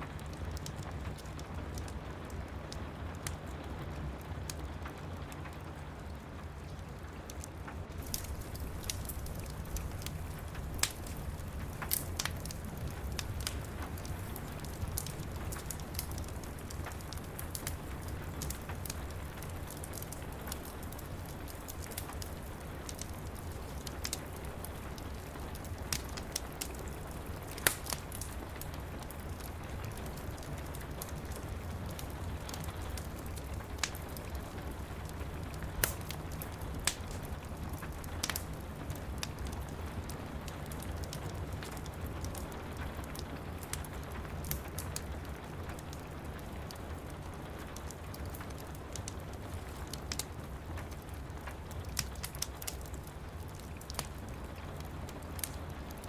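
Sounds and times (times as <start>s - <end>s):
low constant rumble: 0.0s - 56.0s
rain on window glass: 0.0s - 56.0s
wood fire crackling: 0.0s - 56.0s.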